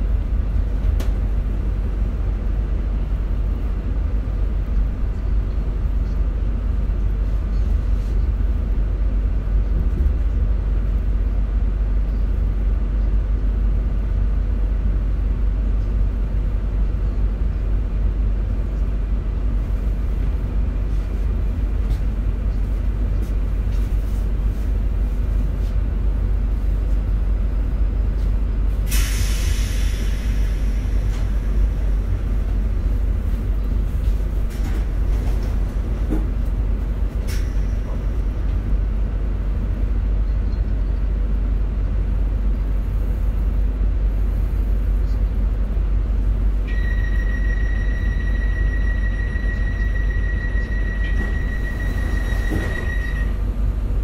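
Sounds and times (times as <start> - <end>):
train rumbling: 0.0 - 54.0
loud hiss of train brakes: 28.8 - 31.8.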